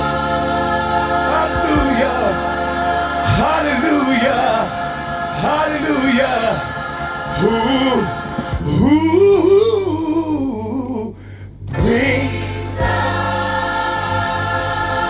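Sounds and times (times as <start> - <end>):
lead voice singing melismatic line: 0.0 - 10.7
gospel choir singing: 0.0 - 15.0.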